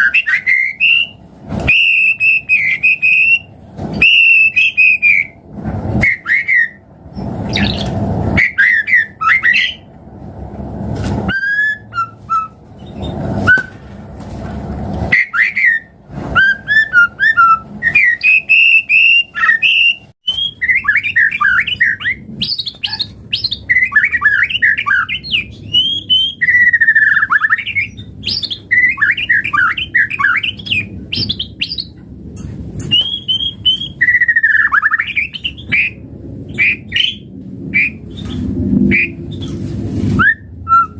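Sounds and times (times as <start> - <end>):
bird singing varied song: 6.0 - 9.9, 15.2 - 32.0, 32.8 - 39.6.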